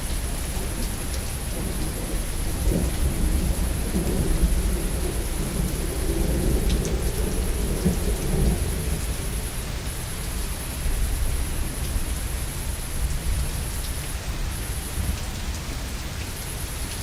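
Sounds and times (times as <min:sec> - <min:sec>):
rolling thunder rumble: 0:00.0 - 0:11.5
heavy rain: 0:00.0 - 0:17.0.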